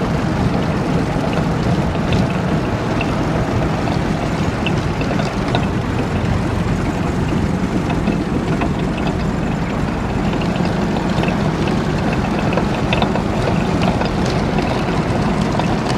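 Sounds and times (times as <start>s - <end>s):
combine harvester running: 0.0s - 15.9s
faint irregular knocks: 0.2s - 15.9s.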